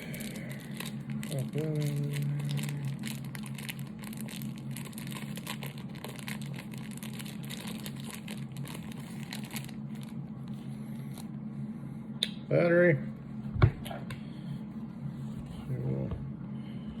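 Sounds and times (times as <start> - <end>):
plastic packaging crinkling: 0.0 - 11.2
steady low hum: 0.0 - 17.0.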